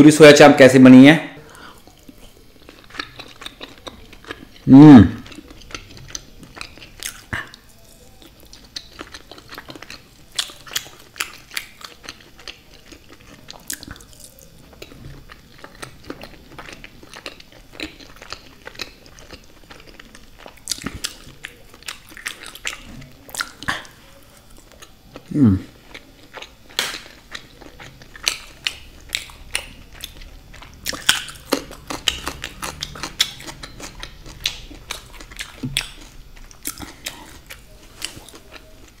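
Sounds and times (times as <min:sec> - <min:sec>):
close-miked chewing: 0:01.4 - 0:39.0
mouth clicks and wet smacks: 0:05.2 - 0:07.6, 0:25.9 - 0:27.5.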